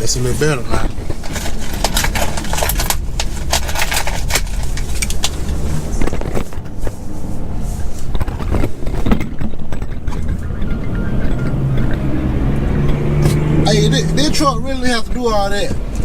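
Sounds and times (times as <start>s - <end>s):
car cabin rumble: 0.0s - 15.7s
sharp crackling and clicking: 0.8s - 6.8s, 8.0s - 13.4s.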